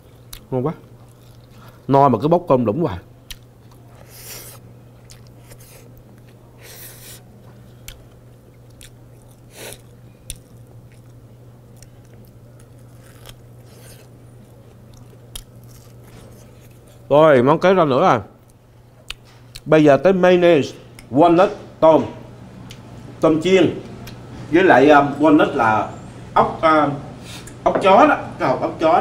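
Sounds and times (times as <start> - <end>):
person chewing crunchy food: 0.0 - 1.9, 3.3 - 17.1
steady low hum: 0.0 - 29.0.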